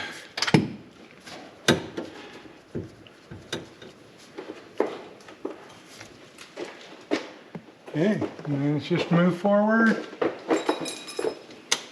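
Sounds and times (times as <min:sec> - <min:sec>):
knocks and clinks on metal parts: 0:09.8 - 0:11.8.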